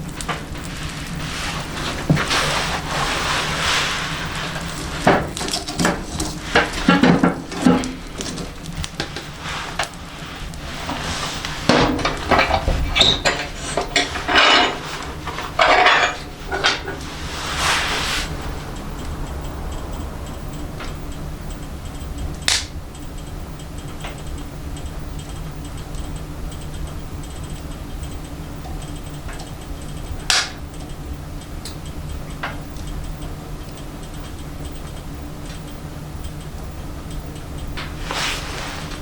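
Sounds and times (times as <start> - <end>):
rush of noise: 0.0 - 25.2
fire pops and crackles: 0.0 - 39.0
wood fire rumbling: 0.0 - 39.0.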